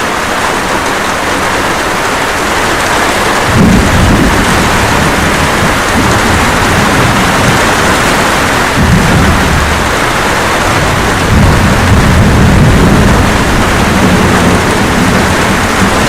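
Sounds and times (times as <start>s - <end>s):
light rain: 0.0s - 16.0s
thunder rumbling: 2.7s - 16.0s.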